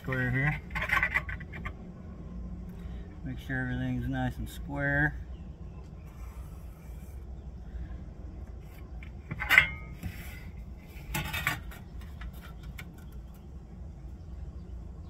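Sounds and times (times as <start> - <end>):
metal clanking on work surface: 0.0 - 1.8, 9.3 - 10.4, 11.0 - 12.6
metal rattle: 0.0 - 1.9, 9.0 - 13.4.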